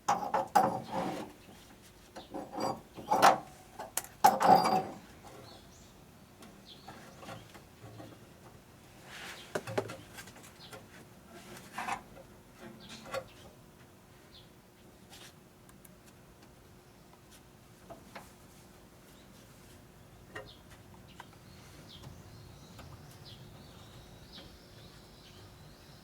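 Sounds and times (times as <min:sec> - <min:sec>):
scraping and rubbing: 0:00.6 - 0:01.4.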